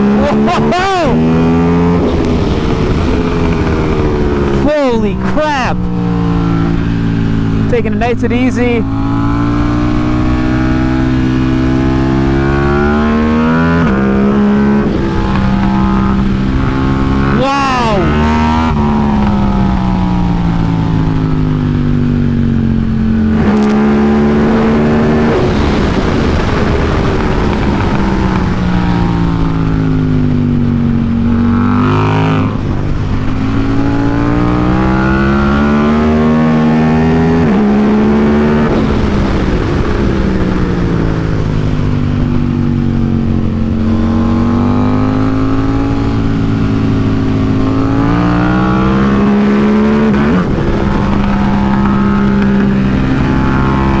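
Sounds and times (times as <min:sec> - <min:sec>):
motorcycle engine revving: 0:00.0 - 0:54.0
wind hiss: 0:24.4 - 0:29.8.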